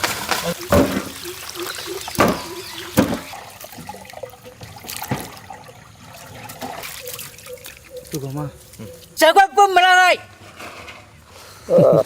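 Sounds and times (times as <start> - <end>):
water pouring and splashing: 0.0 - 9.2.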